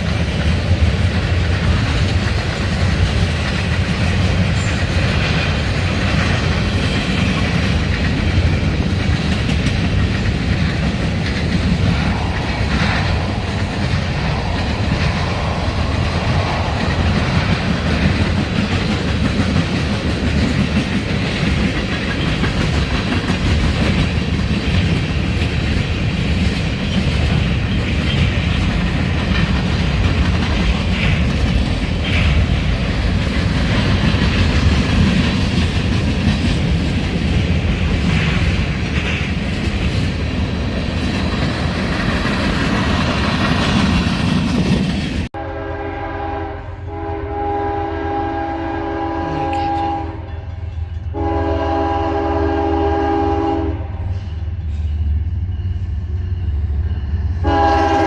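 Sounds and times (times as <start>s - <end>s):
train rumbling on rails: 0.0s - 58.0s
locomotive horn chord: 45.4s - 50.4s, 51.1s - 53.9s, 57.4s - 58.0s.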